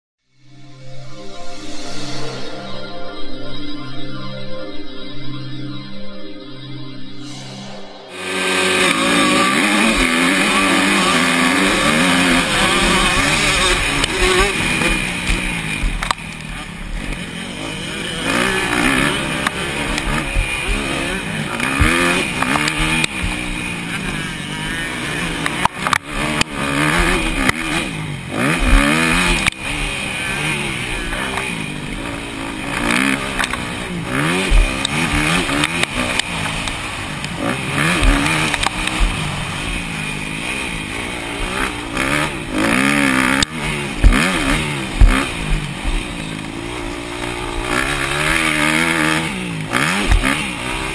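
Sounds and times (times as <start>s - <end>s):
wind rushing: 0.6s - 4.4s, 7.2s - 10.2s
motocross bike engines revving: 8.2s - 50.9s.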